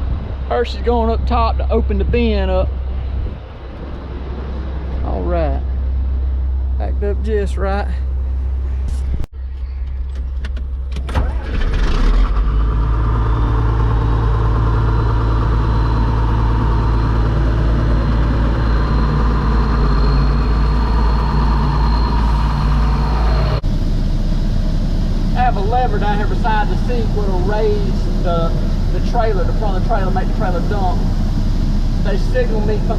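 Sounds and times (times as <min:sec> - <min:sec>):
faint high whine: 0:00.0 - 0:32.9
engine starting and running: 0:08.0 - 0:32.9.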